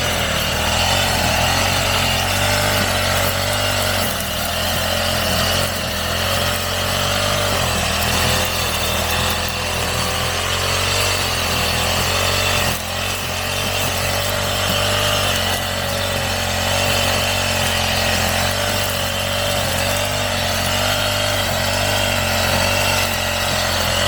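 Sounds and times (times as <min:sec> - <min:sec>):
brush cutter engine cutting grass: 0:00.0 - 0:24.0.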